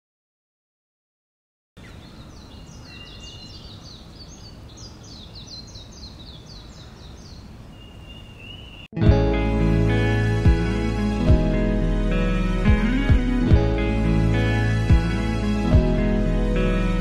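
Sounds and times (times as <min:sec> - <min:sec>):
birds chirping: 0:01.8 - 0:09.0.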